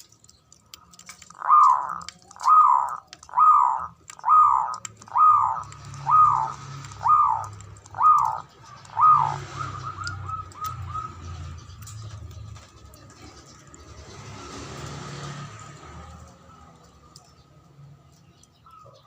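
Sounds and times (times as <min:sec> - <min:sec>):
dove cooing: 0:01.2 - 0:11.5.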